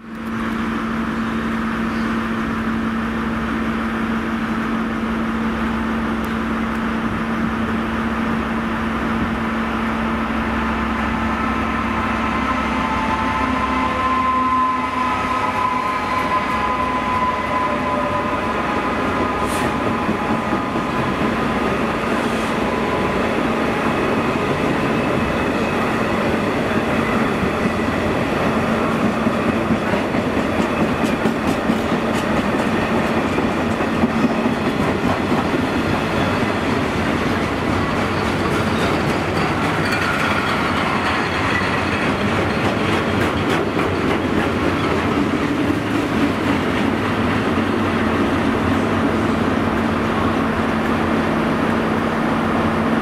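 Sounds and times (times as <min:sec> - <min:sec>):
train wheels rumbling on rails: 0:00.0 - 0:53.0
rail joint clicks: 0:06.1 - 0:07.0, 0:18.8 - 0:52.3
high ringing wheel squeal: 0:12.4 - 0:19.1.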